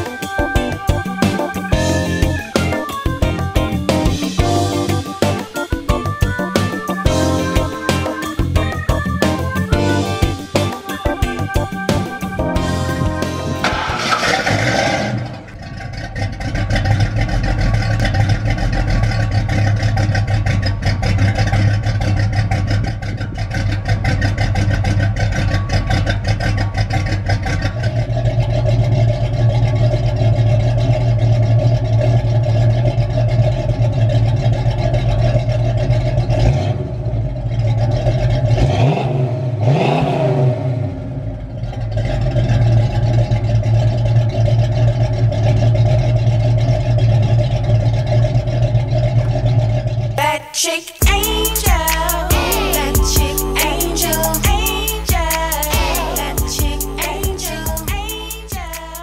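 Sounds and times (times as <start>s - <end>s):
car engine idling and revving: 0.0s - 50.4s, 51.0s - 59.0s.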